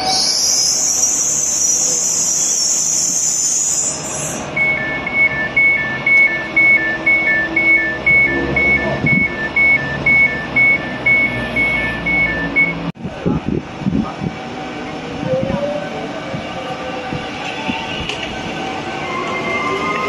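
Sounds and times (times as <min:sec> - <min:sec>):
train wheel squeal: 0:00.0 - 0:04.8, 0:16.8 - 0:20.0
two-tone electronic warning signal: 0:04.5 - 0:12.9
train running rumble: 0:12.0 - 0:20.0.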